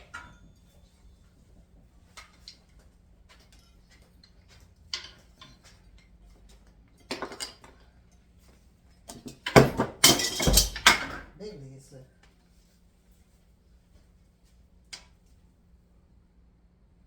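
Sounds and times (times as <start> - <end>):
hard objects clicking and clattering: 9.1 - 11.3.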